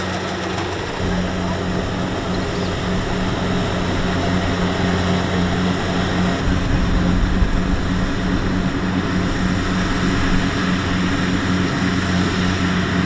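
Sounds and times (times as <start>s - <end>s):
combine harvester running: 0.0s - 13.0s.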